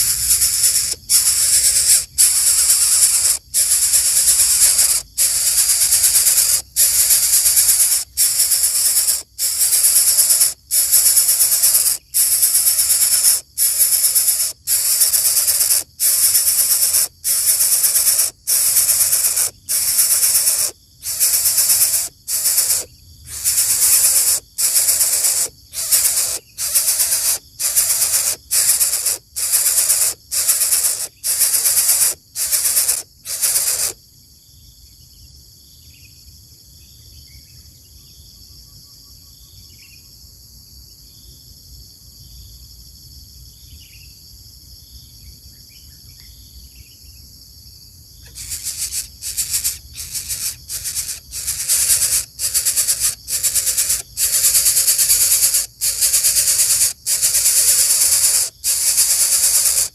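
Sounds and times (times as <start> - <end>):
high insect-like trilling: 0.0 - 34.0, 48.2 - 59.9
loud hissing bursts: 0.0 - 34.0, 48.3 - 59.9
falling bird chirps: 48.3 - 59.9.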